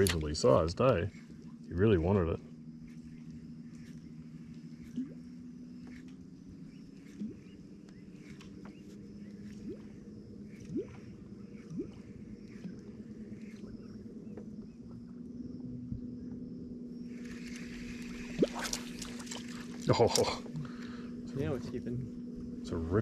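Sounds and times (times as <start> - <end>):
electric motor humming: 17.0 - 22.7.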